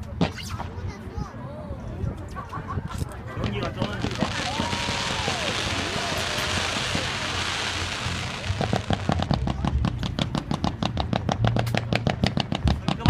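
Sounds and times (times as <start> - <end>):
fireworks sharp pops: 3.4 - 13.0
fireworks crackling hiss: 3.8 - 9.4.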